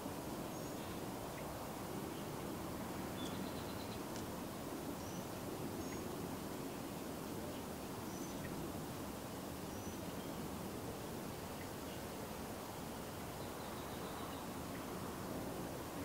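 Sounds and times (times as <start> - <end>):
outdoor background noise: 0.0 - 16.0
faint bird chirps: 3.2 - 4.1, 5.0 - 6.1, 7.0 - 8.6, 9.7 - 10.5, 13.3 - 14.9.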